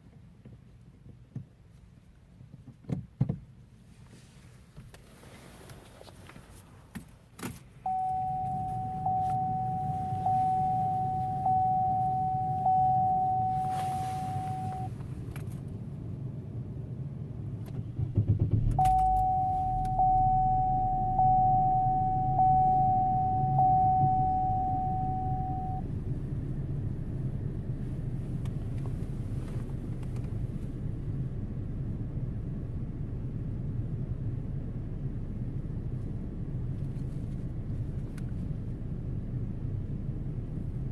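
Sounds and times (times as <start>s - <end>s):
car engine idling: 7.7s - 36.9s
warning chime dings: 7.9s - 14.9s, 18.8s - 25.8s
car engine cranking: 17.6s - 25.8s
car key clicks: 18.8s - 20.1s.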